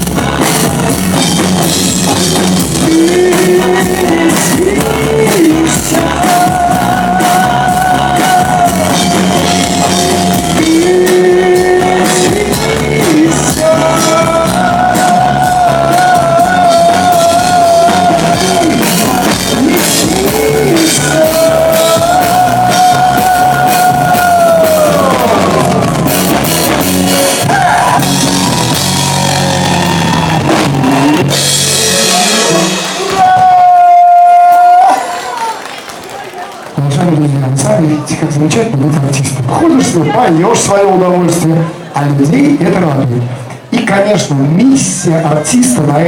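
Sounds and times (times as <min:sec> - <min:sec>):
live pop-rock band: 0:00.0 - 0:36.7.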